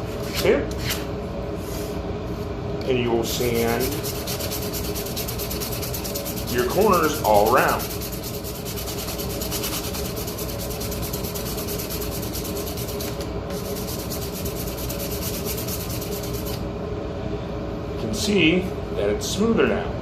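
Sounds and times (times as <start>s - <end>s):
sandpaper rubbing strokes: 3.5s - 16.6s.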